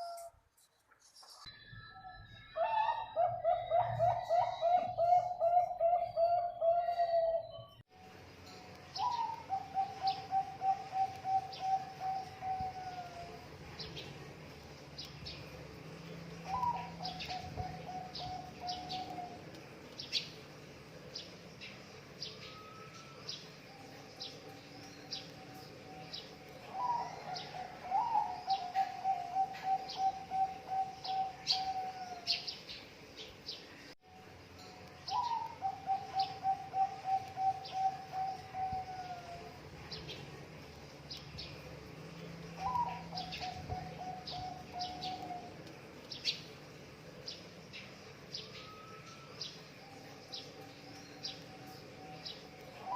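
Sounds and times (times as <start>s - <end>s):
doves cooing: 2.6s - 7.7s, 9.0s - 13.5s, 16.4s - 19.6s, 26.6s - 32.5s, 35.1s - 39.6s, 42.4s - 45.8s
small birds chirping: 8.7s - 34.0s, 34.8s - 52.9s.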